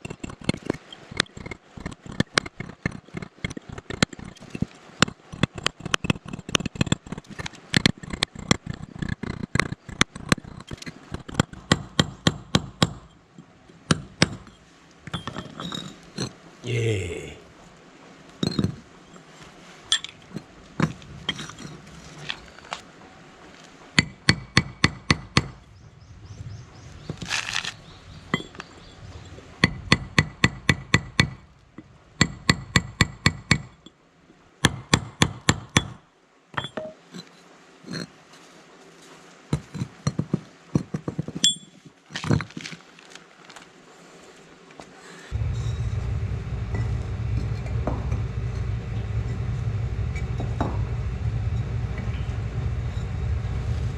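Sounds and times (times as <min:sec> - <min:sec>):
steady low hum: 0:45.3 - 0:53.9.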